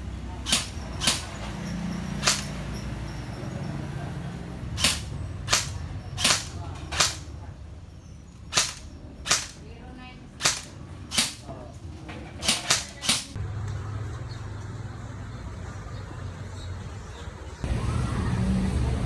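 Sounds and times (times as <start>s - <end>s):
sharp short pops: 0.5s - 1.5s, 2.2s - 2.6s, 4.8s - 7.3s, 8.5s - 9.6s, 10.4s - 11.5s, 12.4s - 13.4s.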